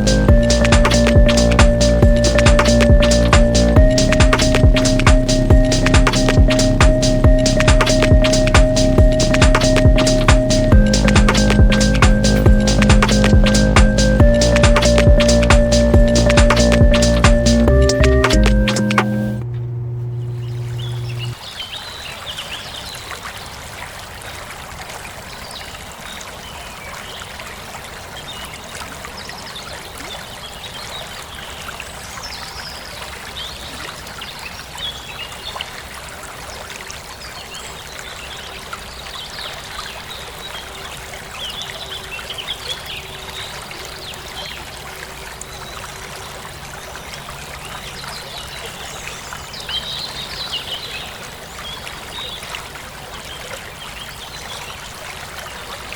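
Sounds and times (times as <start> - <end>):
water running: 0.0 - 21.4
small birds chirping: 20.0 - 21.9.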